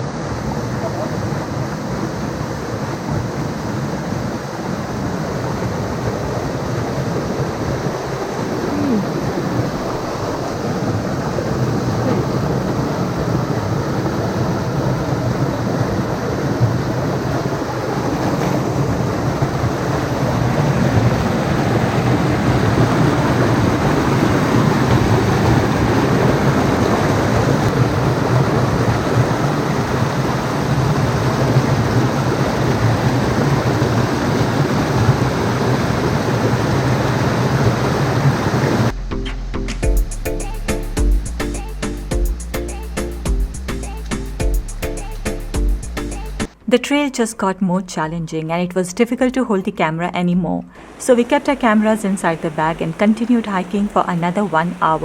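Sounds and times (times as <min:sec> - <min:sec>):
stream water rushing: 0:00.0 - 0:39.0, 0:50.8 - 0:55.0.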